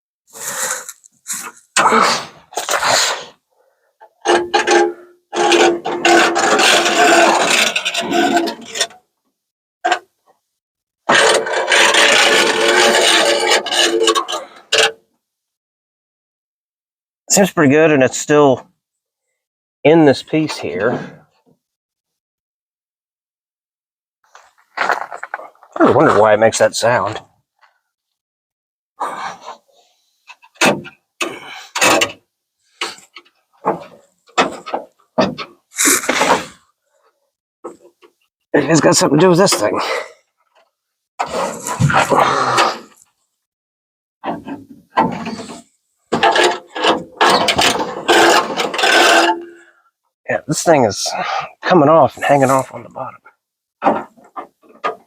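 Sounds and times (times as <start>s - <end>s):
window glass scraping and squeaking: 4.1s - 9.0s, 11.1s - 14.9s, 29.4s - 36.7s, 41.2s - 43.1s, 44.2s - 49.6s.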